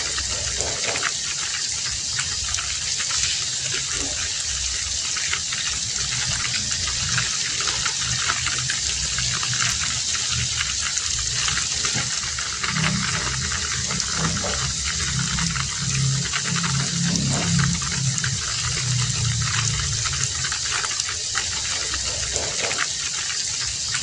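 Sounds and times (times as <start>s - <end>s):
heavy rain falling: 0.0s - 24.0s
low hum: 5.7s - 22.8s.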